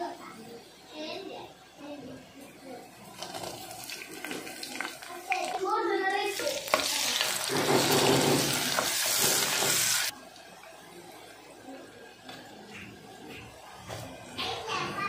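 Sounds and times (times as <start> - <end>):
vegetables sizzling in hot oil: 3.0 - 10.1.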